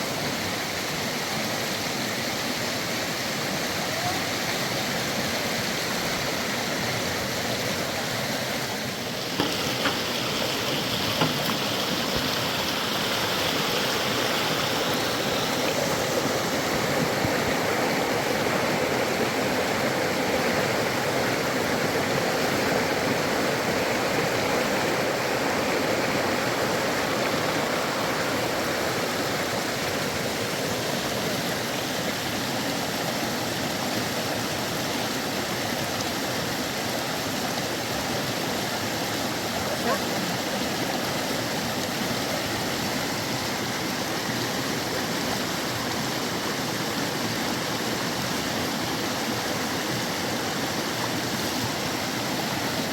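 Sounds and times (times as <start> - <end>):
river water rushing: 0.0 - 52.9
small knocks: 9.3 - 10.2, 11.0 - 11.8.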